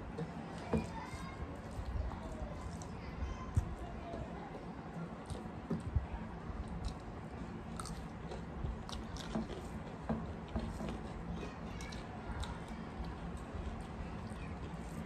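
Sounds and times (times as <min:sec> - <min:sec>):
fingers mixing wet rice: 0:00.0 - 0:15.0
chewing and biting: 0:00.5 - 0:15.0
crunchy cucumber bites: 0:06.6 - 0:09.8.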